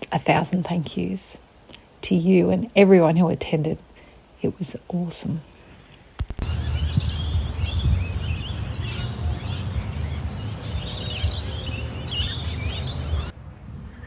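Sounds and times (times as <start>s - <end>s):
small birds chirping: 6.2s - 13.4s
low rumble: 6.4s - 14.0s.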